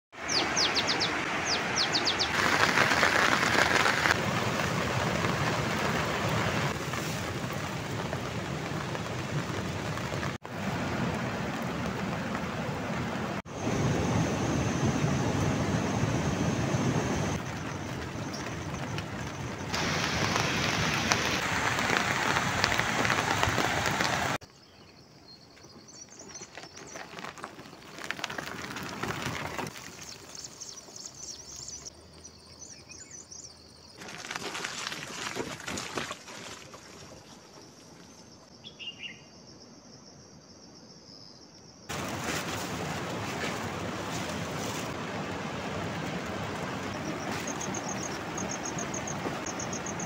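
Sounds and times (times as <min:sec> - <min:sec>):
birds chirping: 0:00.2 - 0:02.4, 0:17.1 - 0:21.4, 0:46.4 - 0:50.0
heavy rain hissing: 0:01.1 - 0:24.4, 0:41.9 - 0:50.0.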